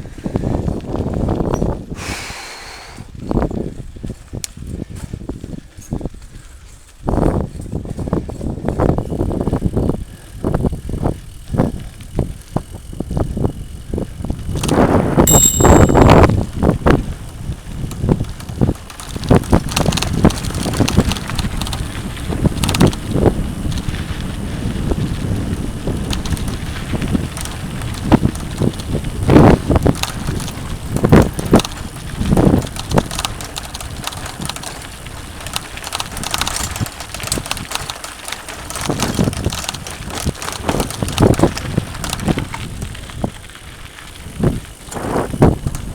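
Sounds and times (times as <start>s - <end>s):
mountain bike rattling on trail: 0.0s - 2.4s, 3.0s - 45.9s
brief high-pitched tone: 15.3s - 16.3s.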